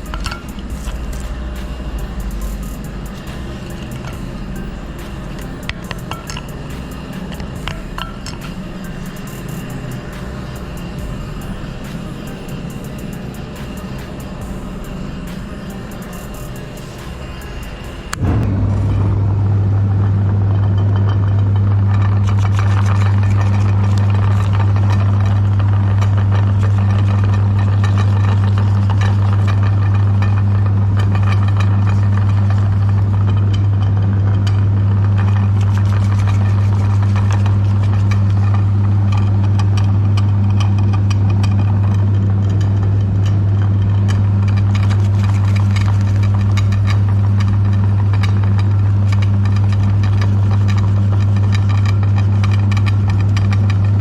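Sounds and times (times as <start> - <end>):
electric meat grinder running: 21.9 - 54.0.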